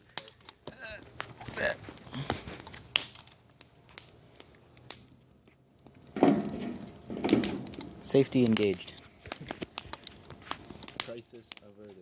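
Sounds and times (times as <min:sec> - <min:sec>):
fire crackling and popping: 0:00.0 - 0:12.0.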